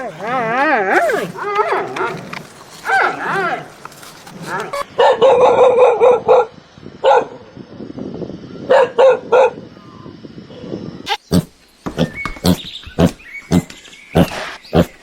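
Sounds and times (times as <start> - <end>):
dog barking: 0.9 - 3.5, 4.4 - 7.4, 8.7 - 9.6.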